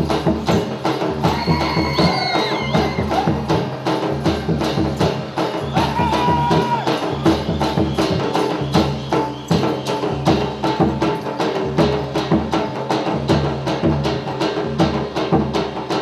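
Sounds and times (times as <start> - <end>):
fast percussion beat: 0.0 - 16.0.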